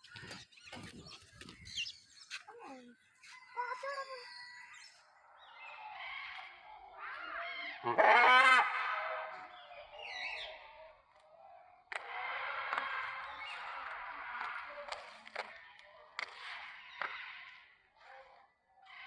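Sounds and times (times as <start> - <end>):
parrots squawking: 7.0 - 9.4.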